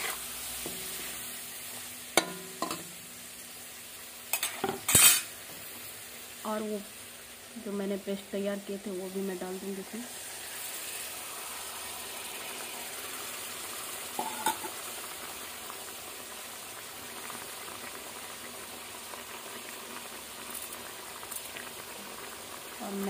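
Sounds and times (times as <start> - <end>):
chicken sizzling in oil: 0.0 - 23.0.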